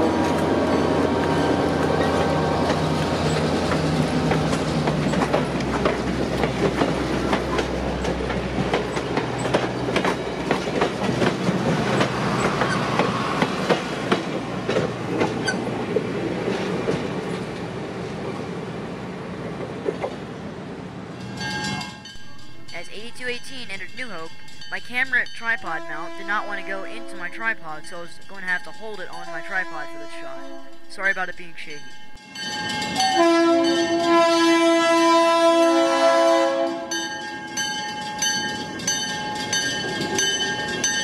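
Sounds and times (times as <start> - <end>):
diesel locomotive drone: 0.0 - 37.0
wheels clattering over rail joints: 1.8 - 17.7.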